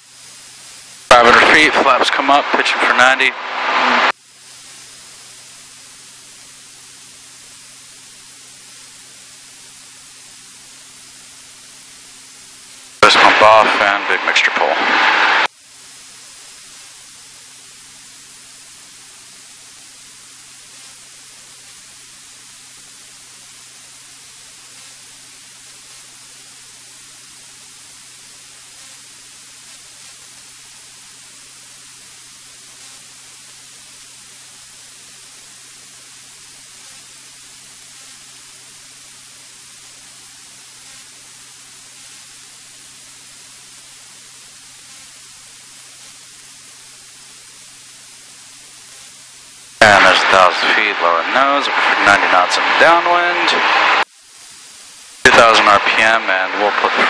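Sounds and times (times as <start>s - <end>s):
intercom hiss: 0.0s - 57.0s.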